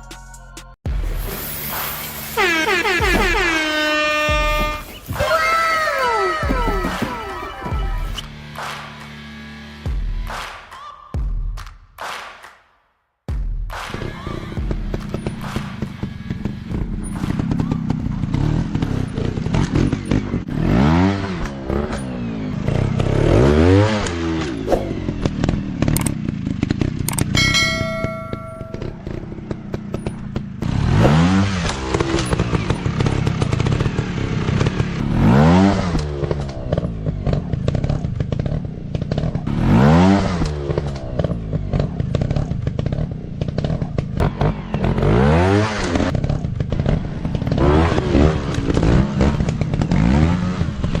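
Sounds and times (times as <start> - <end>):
dirt bike engines revving: 1.0 - 9.8, 13.9 - 51.0
steady high tone: 27.4 - 29.2.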